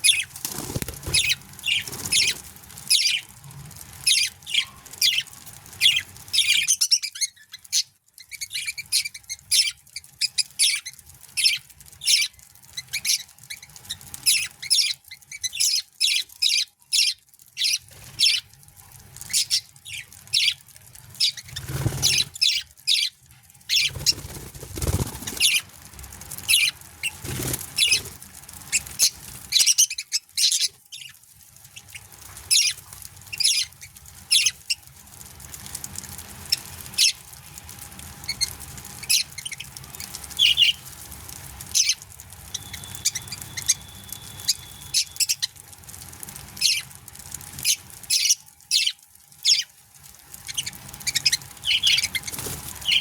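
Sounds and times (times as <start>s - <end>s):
budgerigars chirping: 0.0s - 3.2s, 4.1s - 10.8s, 14.3s - 18.4s, 21.2s - 23.1s, 26.5s - 28.1s, 40.4s - 40.8s, 41.7s - 45.5s, 48.1s - 49.7s, 50.5s - 53.0s.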